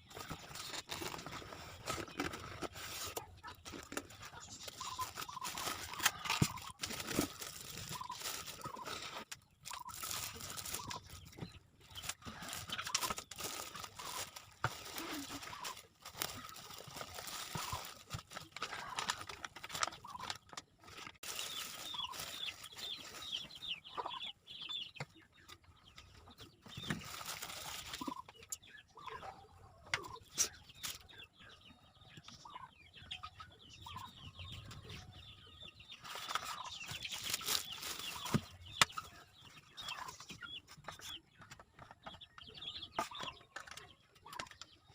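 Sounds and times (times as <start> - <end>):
chickens clucking: 0.0 - 44.9
packaging rustling and crinkling: 0.1 - 23.4, 26.8 - 28.1, 36.0 - 38.5.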